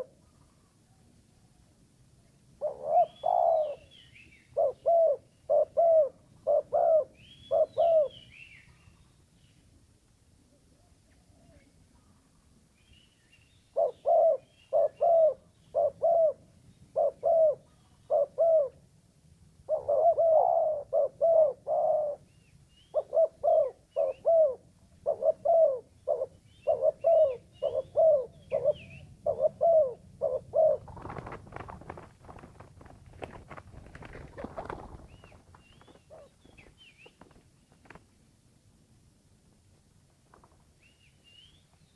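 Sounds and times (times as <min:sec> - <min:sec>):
dove cooing: 0:02.6 - 0:08.4, 0:13.7 - 0:18.8, 0:19.6 - 0:22.3, 0:22.9 - 0:36.8
rustling: 0:30.8 - 0:38.3
faint small bird chirps: 0:40.8 - 0:41.9.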